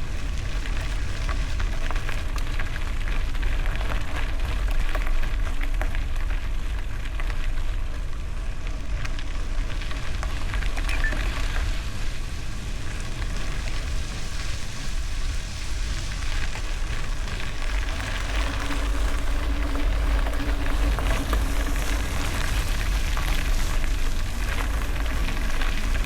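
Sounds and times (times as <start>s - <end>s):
wind rumbling on microphone: 0.0s - 26.0s.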